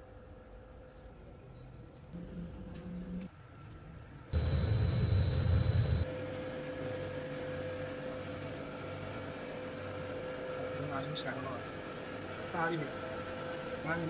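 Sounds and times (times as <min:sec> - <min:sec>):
high machine whine: 0:04.3 - 0:14.0
machine hum: 0:04.3 - 0:14.0
machinery low rumble: 0:04.4 - 0:06.1.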